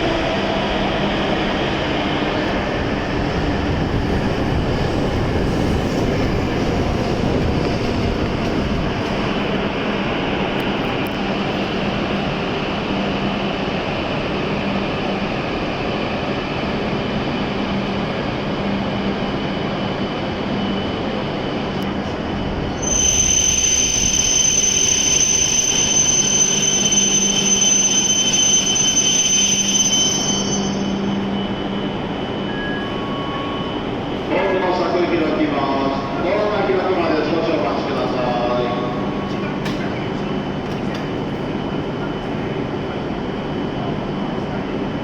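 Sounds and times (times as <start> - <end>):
train rolling with steady hum: 0.0 - 45.0
high-pitched brake squeal: 22.7 - 34.2.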